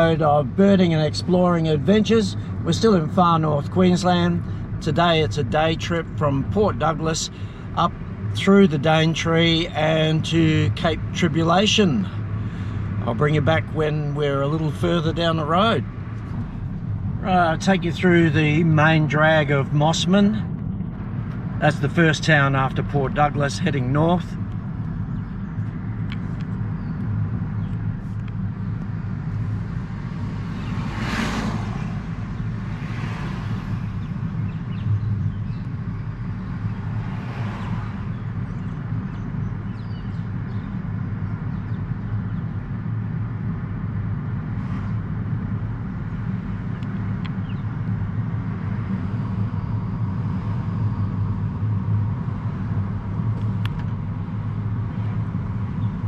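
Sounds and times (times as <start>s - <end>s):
engine and road noise rumble: 0.0s - 56.0s
passing vehicles whooshing: 11.8s - 56.0s.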